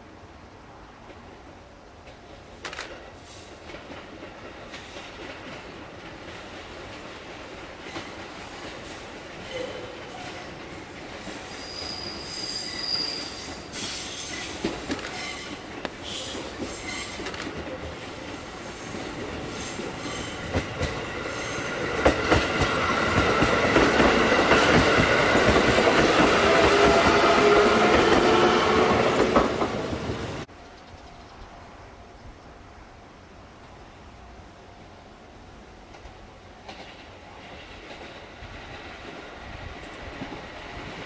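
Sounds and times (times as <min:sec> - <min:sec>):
electric train passing: 0:00.4 - 0:41.0
high squeal of train wheels: 0:07.7 - 0:17.4, 0:18.3 - 0:29.5.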